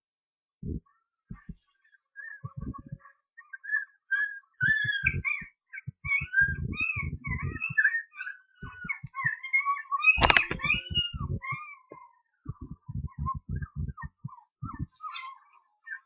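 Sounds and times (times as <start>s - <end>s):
bird-like chirping and whistling: 0.6s - 16.0s
short low thumps: 6.5s - 7.6s, 12.5s - 14.9s.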